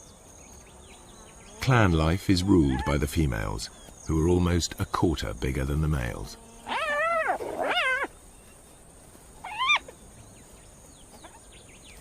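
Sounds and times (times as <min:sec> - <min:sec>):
hyena calls: 0:06.6 - 0:08.1, 0:09.4 - 0:10.0.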